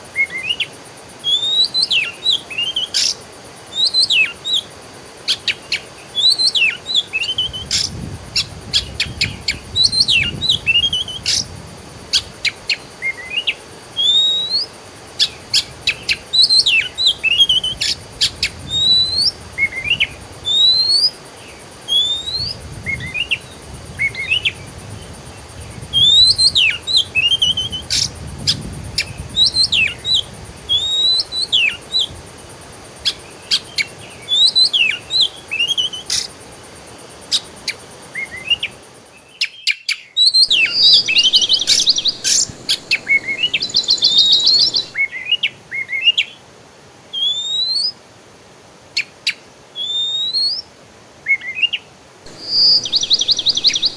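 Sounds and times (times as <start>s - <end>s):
songbirds chirping: 40.4s - 45.1s, 52.3s - 53.9s.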